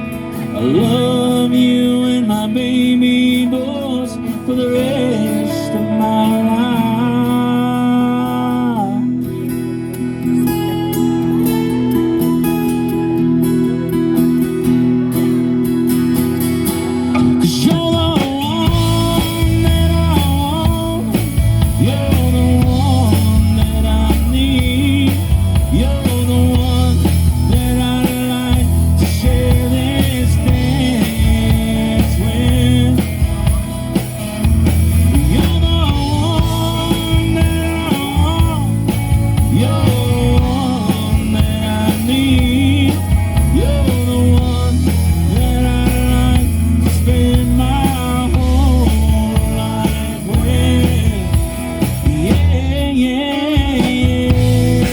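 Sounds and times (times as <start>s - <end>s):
bass guitar: 0.0s - 54.9s
electric guitars: 0.0s - 54.9s
sliding guitar melody: 0.0s - 54.9s
drum kit: 16.1s - 54.9s.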